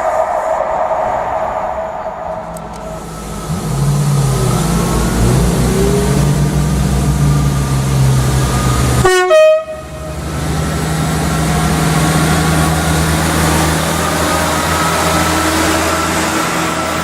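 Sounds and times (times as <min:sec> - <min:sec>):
diesel train engine running: 0:00.0 - 0:17.0
two-note train horn blast: 0:09.0 - 0:10.2.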